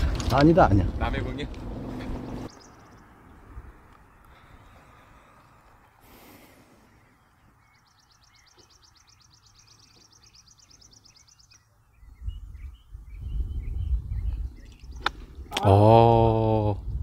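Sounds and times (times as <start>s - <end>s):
soft bird chirps: 2.0s - 15.6s.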